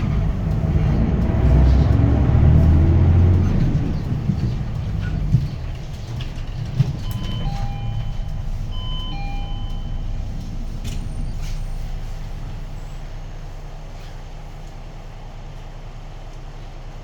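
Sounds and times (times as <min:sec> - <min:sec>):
bus diesel engine rumbling: 0:00.0 - 0:17.0.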